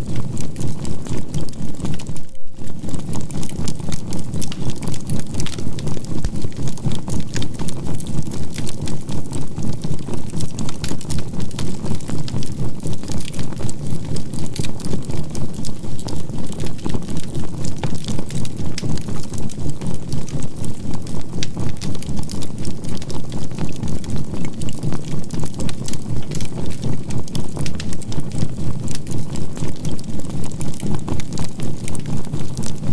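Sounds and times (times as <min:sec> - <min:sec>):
pulsing synthesized low hum: 0:00.0 - 0:04.4
charcoal fire crackling: 0:00.0 - 0:32.9.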